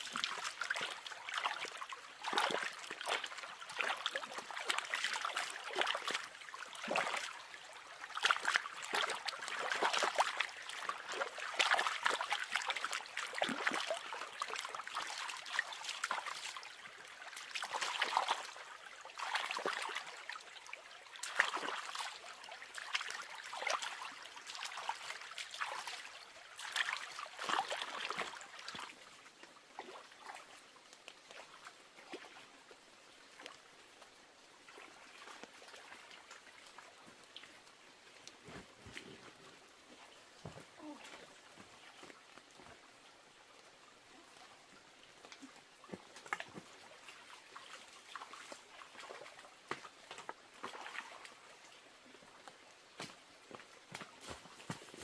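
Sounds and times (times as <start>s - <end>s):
water splashing and trickling: 0.0s - 55.0s.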